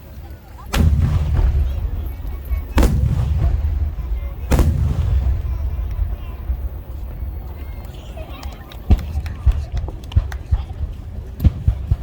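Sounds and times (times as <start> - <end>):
low rumbling boom: 0.7 - 9.6
firework shells bursting: 0.7 - 10.0.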